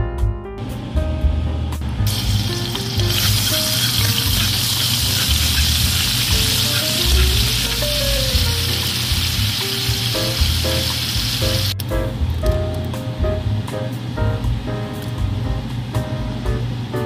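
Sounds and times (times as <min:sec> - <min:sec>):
garlic sizzling in frying pan: 0:02.1 - 0:11.8.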